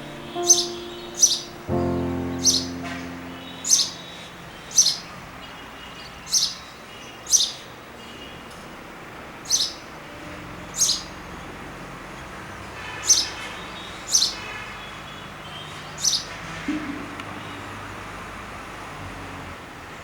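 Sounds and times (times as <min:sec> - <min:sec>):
small bird chirping: 0:00.0 - 0:07.7.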